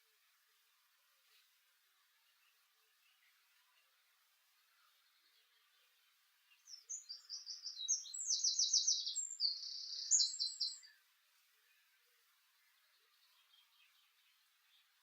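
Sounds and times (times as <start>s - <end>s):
songbird singing trills: 4.6s - 11.0s.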